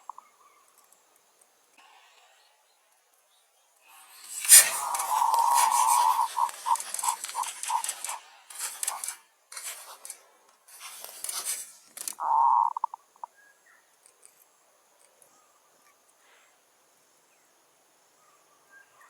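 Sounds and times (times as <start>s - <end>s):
wings rustling and flapping: 4.2s - 12.2s
whistle-like tone with pulses: 4.5s - 8.2s.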